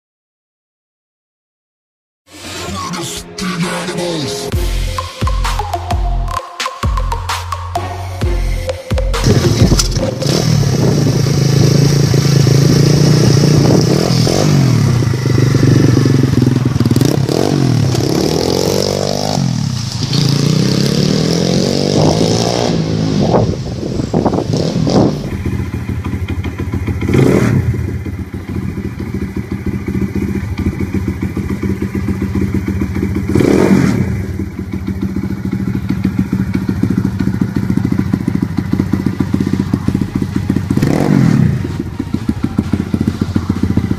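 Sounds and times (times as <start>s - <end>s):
dirt bike engine revving: 9.1s - 43.9s.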